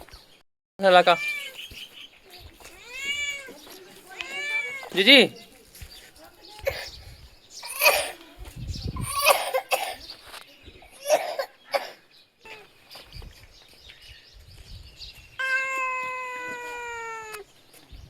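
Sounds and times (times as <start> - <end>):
kitten meowing: 1.1 - 1.6, 2.8 - 3.5, 4.1 - 5.0, 15.4 - 17.4.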